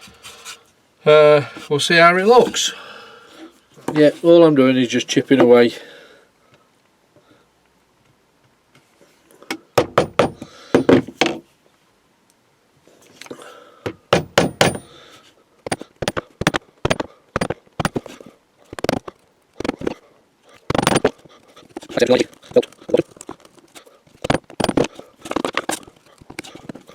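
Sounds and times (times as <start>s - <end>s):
chisel knocking on wood: 9.8s - 11.0s, 14.1s - 14.9s, 15.7s - 18.1s.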